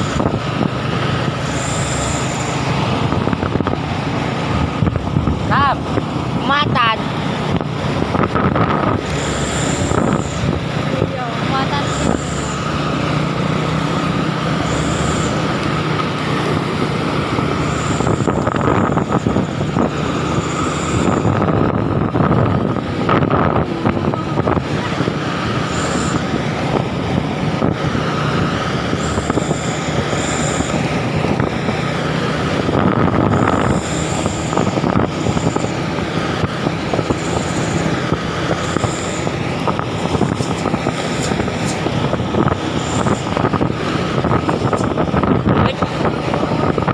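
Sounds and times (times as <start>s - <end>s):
truck engine running: 0.0s - 46.9s.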